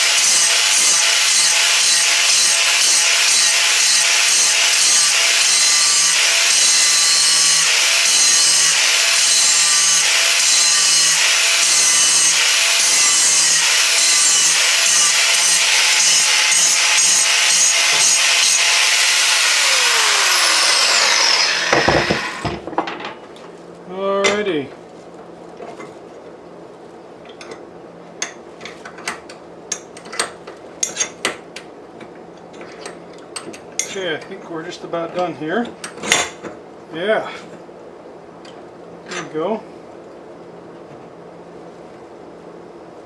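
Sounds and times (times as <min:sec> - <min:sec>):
grinder grinding steel: 0:00.0 - 0:22.6
grinder spinning down: 0:00.0 - 0:22.6.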